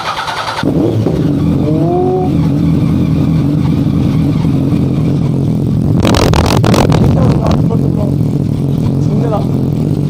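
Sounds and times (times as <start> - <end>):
motorcycle engine idling: 0.0 - 10.0
loud noisy burst: 5.4 - 9.9.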